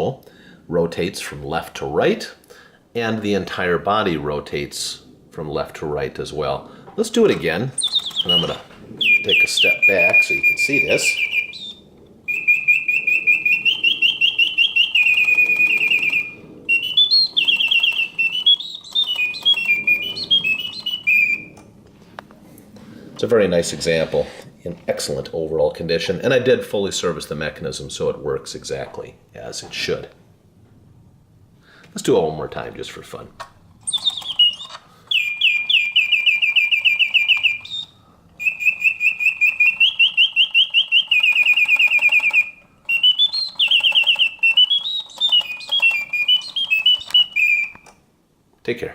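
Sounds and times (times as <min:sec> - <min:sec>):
mechanical bird whistle chirping: 0:07.8 - 0:21.6, 0:33.8 - 0:47.9.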